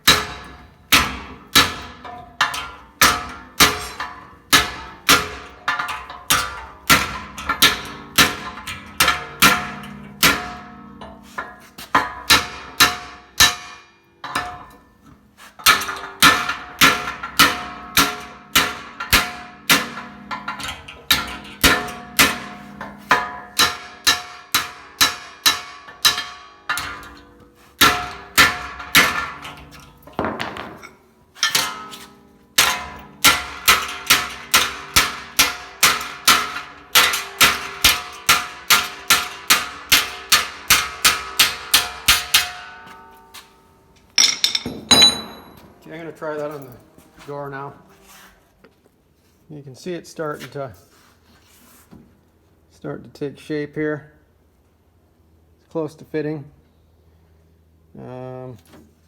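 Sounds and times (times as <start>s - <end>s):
hammer striking sheet metal: 0.0s - 10.8s, 44.2s - 45.8s.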